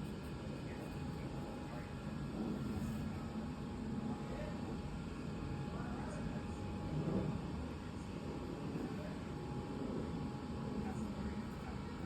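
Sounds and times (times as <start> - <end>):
faint muffled voices: 0.0 - 12.0.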